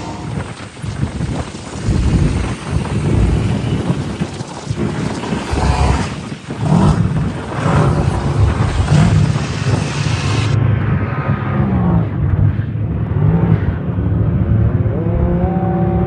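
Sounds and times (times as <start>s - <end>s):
wind buffeting microphone: 0.0s - 16.0s
utility vehicle engine revving: 5.5s - 16.0s.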